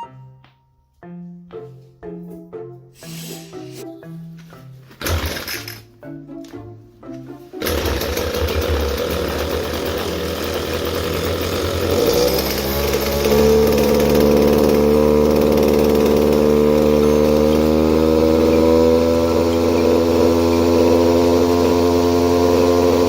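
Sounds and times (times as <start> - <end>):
two-stroke brush cutter engine: 5.0 - 5.8, 7.6 - 23.0.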